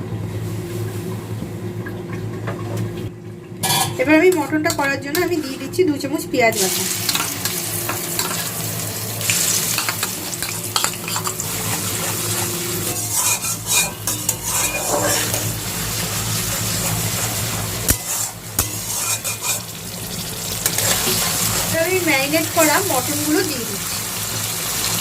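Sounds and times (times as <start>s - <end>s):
spatula scraping a pan: 3.6s - 5.8s, 7.1s - 19.8s, 20.6s - 21.8s
onion paste sizzling in oil: 4.0s - 25.0s.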